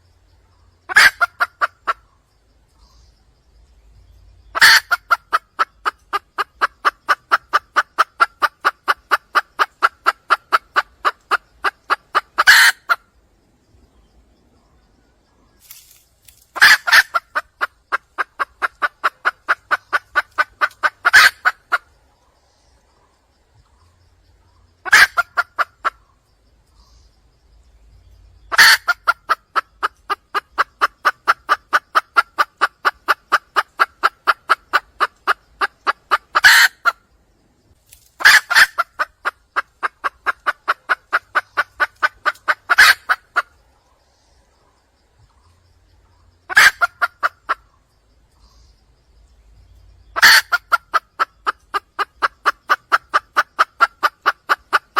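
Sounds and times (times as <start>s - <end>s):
hen clucking call: 0.9s - 2.0s, 4.5s - 13.0s, 16.6s - 21.9s, 24.8s - 26.0s, 28.5s - 37.0s, 38.2s - 43.5s, 46.5s - 47.7s, 50.2s - 54.9s.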